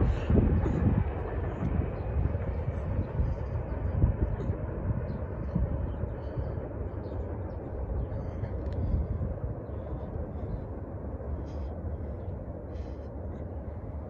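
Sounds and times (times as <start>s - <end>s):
freight train rumble: 0.0s - 14.0s.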